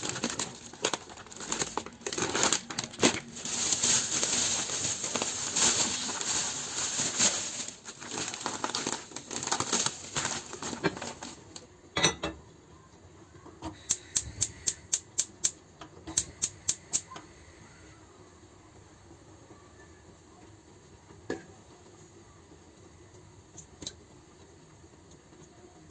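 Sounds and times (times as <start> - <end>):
packaging crinkling: 0.0 - 11.7.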